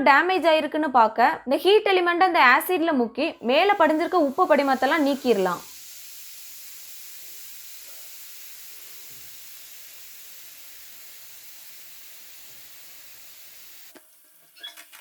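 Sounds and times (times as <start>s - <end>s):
acid fizzing: 3.4s - 15.0s.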